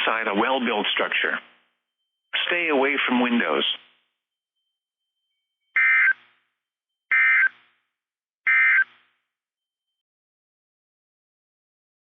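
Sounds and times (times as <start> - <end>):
buzzy two-tone data bursts: 5.8 - 6.2.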